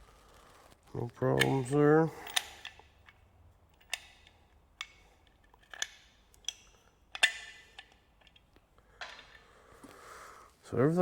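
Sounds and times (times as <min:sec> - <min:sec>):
water pump parts clicking: 0:01.3 - 0:09.5.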